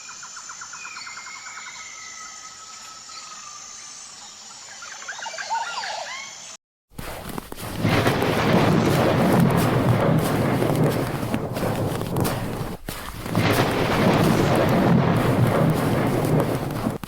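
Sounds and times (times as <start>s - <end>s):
birds singing and calling: 0.0s - 6.6s.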